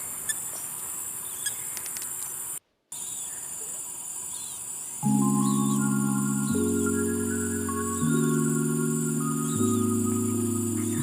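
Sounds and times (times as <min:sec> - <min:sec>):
faint bird chirps: 0:00.0 - 0:11.0
insects trilling: 0:00.0 - 0:11.0
soft music with sustained chords: 0:05.0 - 0:11.0.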